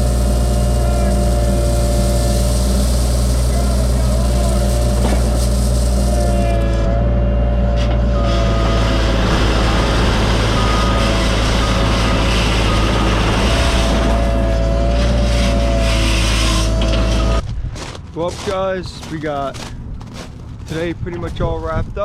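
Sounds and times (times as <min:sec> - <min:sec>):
high-pitched whine: 0:00.0 - 0:17.4
excavator diesel engine running: 0:00.0 - 0:17.5.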